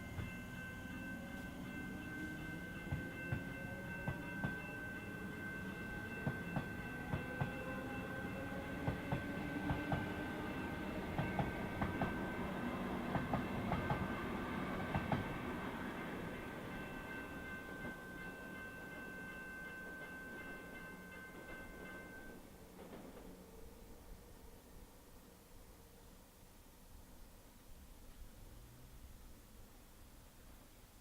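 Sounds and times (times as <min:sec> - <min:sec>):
electric train passing: 0:00.0 - 0:30.8
train whine: 0:00.0 - 0:30.8
train wheels clicking over rail joints: 0:02.0 - 0:18.0, 0:22.7 - 0:23.4.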